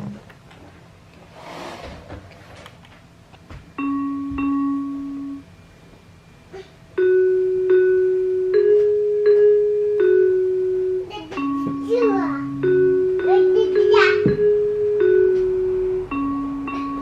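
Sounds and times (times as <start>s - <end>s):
toy keyboard chime notes: 3.8s - 5.4s, 7.0s - 17.0s.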